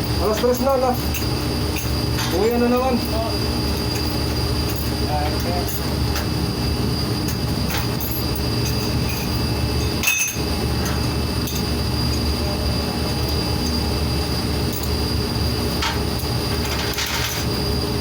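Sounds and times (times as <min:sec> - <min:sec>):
machinery hum and whine: 0:00.0 - 0:18.0
metallic clinks of tools: 0:07.3 - 0:12.2.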